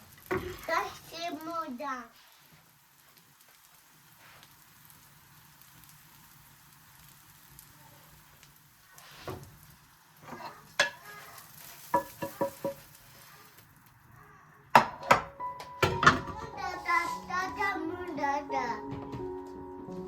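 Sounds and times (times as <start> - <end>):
food sizzling in a pan: 0.0 - 18.8
utensil clinking on cookware: 10.8 - 11.1, 11.9 - 12.9.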